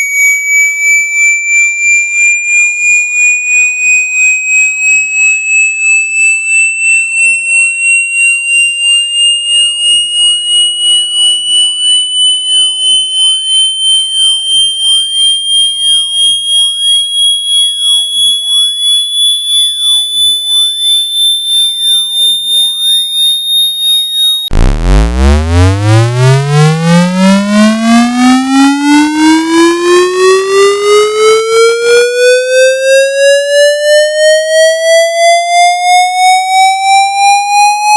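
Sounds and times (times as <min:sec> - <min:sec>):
high pulsing electronic tone: 0:10.2 - 0:31.6
low buzzy sweeping tone: 0:24.5 - 0:28.2.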